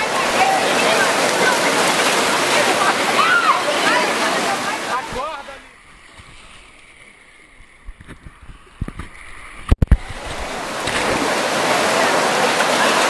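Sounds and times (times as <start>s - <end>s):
waterfall rushing: 0.0s - 5.7s, 10.0s - 13.0s.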